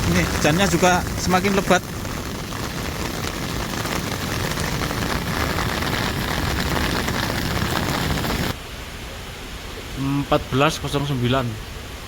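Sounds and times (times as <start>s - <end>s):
heavy rain falling: 0.0s - 8.6s
wind on microphone: 0.0s - 8.6s.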